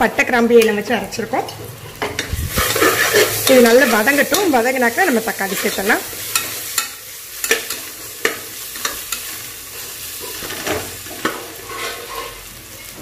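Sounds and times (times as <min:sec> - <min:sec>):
onions sizzling in oil: 0:00.0 - 0:13.0
spatula scraping pot bottom: 0:02.2 - 0:04.5, 0:11.6 - 0:12.4.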